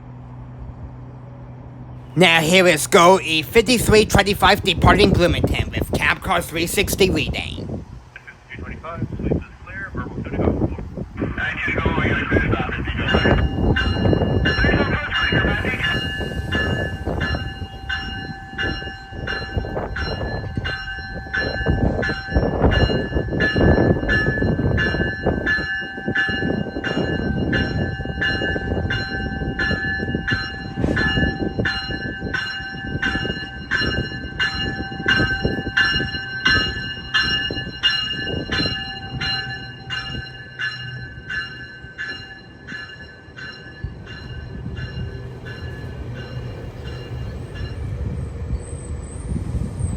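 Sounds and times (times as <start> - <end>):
train warning bell ringing: 2.2 - 7.6, 12.8 - 48.1
train rumbling: 11.8 - 49.9.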